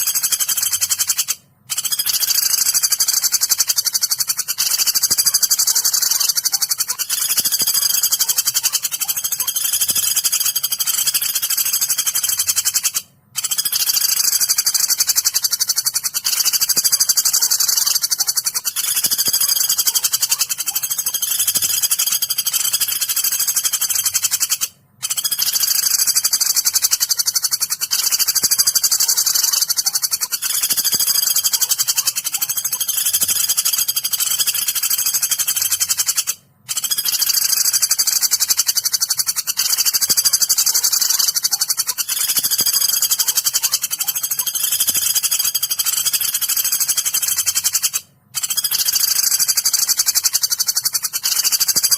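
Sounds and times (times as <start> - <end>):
woodpecker calls: 0.0 - 51.9.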